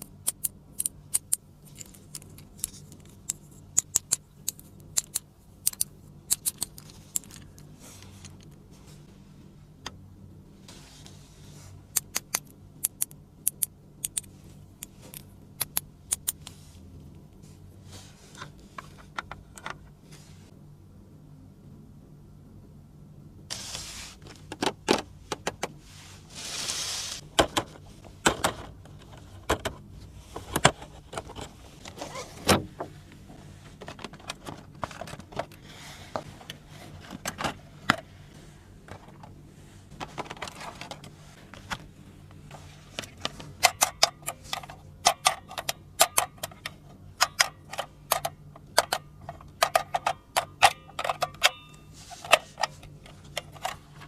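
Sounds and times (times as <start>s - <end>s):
toy pieces clicking and tapping: 3.3s - 7.4s, 12.0s - 14.3s.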